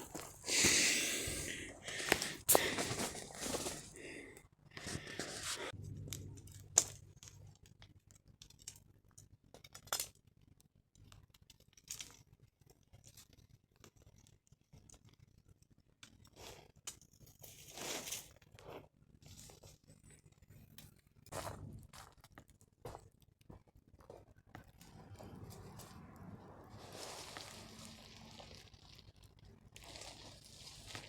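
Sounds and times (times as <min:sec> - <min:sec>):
rustling and crinkling: 0:00.0 - 0:05.8, 0:16.1 - 0:31.0.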